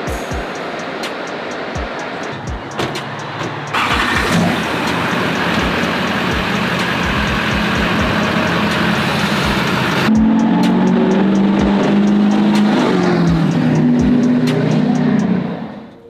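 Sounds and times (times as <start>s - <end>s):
loud rushing hiss: 0.0s - 10.1s
vehicle engine running: 1.5s - 15.6s.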